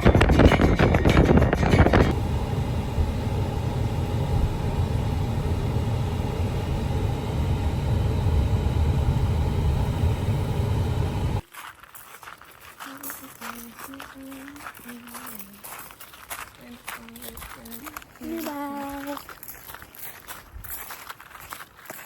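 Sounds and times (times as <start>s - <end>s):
car interior rumble: 0.0s - 11.4s.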